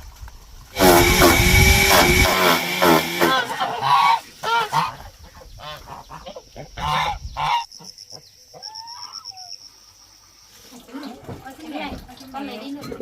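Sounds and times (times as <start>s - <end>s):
waterfowl honking: 0.8s - 5.0s.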